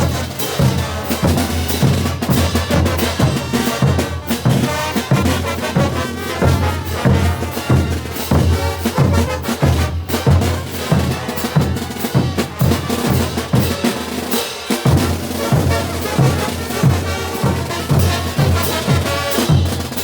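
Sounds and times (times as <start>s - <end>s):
bass drum: 0.0s - 13.9s
brass band playing: 0.0s - 20.0s
snare drum: 0.0s - 20.0s.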